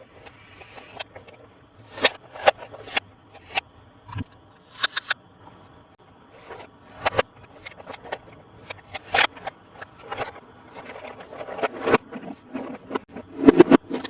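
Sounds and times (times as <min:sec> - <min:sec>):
plastic toy and packaging handled: 0:06.4 - 0:14.0.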